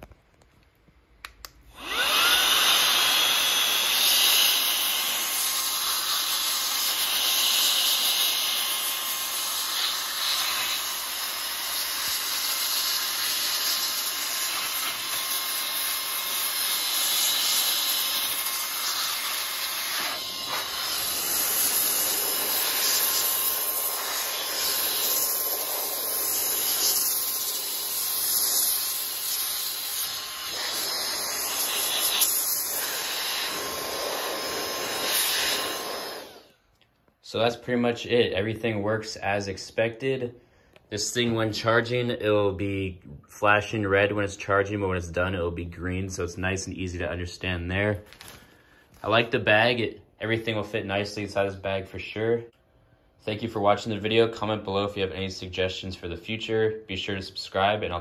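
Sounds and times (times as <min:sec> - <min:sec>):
air duster rushing air: 0:01.7 - 0:36.6.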